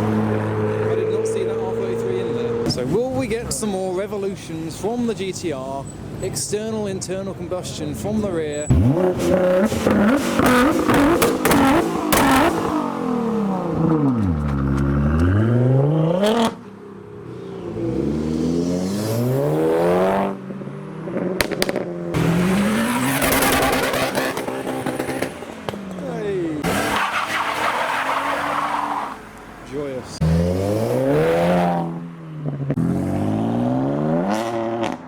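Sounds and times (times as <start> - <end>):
car engine revving hard: 0.0 - 2.9, 8.7 - 16.6, 17.6 - 20.4, 21.0 - 25.7, 26.6 - 29.2, 30.1 - 35.0
exhaust pops and crackles: 8.7 - 12.9, 13.7 - 15.4, 21.4 - 27.9.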